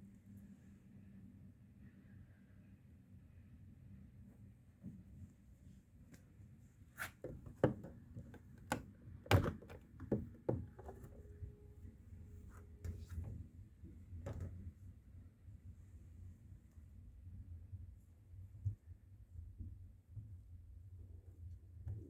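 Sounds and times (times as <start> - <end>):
washing machine low hum: 0.0 - 22.0
washing machine knocks and thuds: 7.2 - 11.1.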